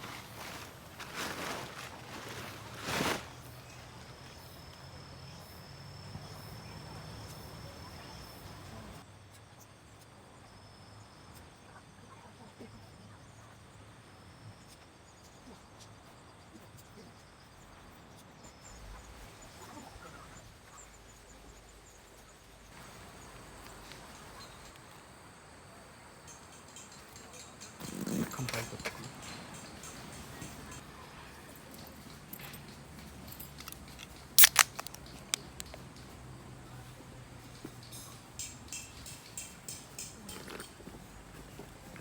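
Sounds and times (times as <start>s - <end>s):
insects buzzing: 0.0s - 9.0s, 16.8s - 42.0s
high insect chirps: 0.1s - 9.0s, 18.4s - 31.0s, 31.8s - 42.0s.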